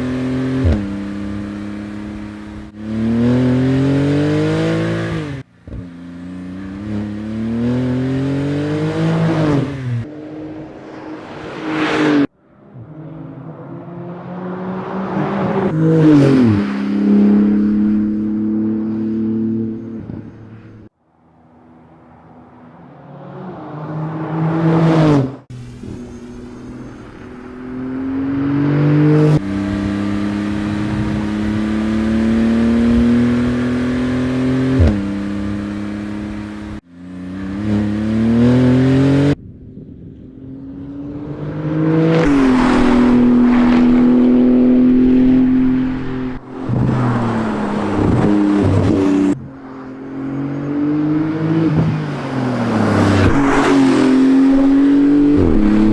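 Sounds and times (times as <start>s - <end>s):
car engine accelerating: 22.0s - 39.4s, 40.1s - 55.9s.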